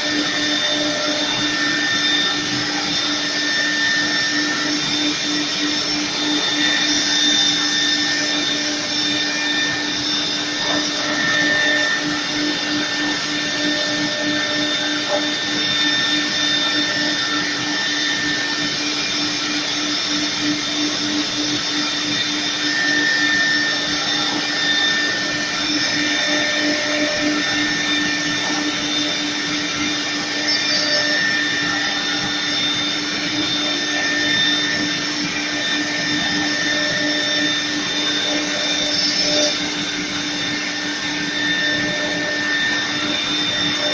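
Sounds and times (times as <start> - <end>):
machine whine: 0.0 - 43.9.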